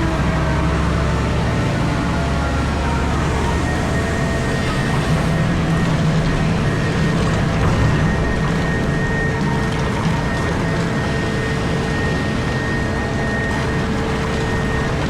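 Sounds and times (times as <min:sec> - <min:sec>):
excavator engine low drone: 0:00.0 - 0:15.0
thin high whine: 0:02.5 - 0:05.8.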